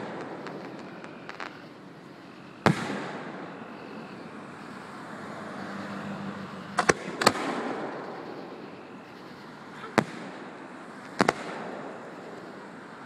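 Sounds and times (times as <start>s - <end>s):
fireworks shells bursting: 0.0s - 4.2s.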